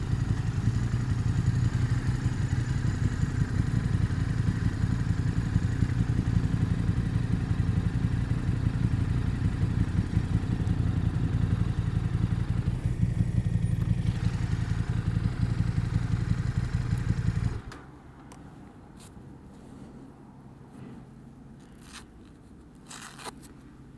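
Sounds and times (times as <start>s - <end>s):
motorcycle engine running: 0.0s - 17.8s.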